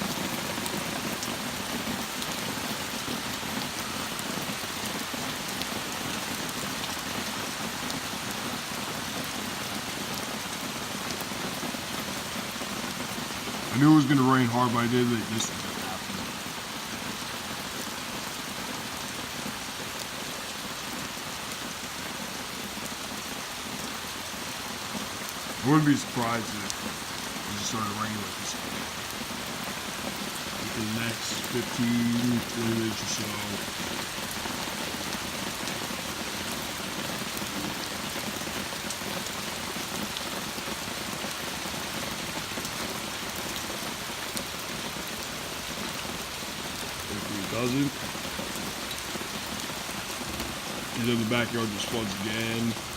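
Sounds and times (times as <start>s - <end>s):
torrential rain pouring: 0.0s - 52.9s
raindrop ticks: 25.3s - 41.4s.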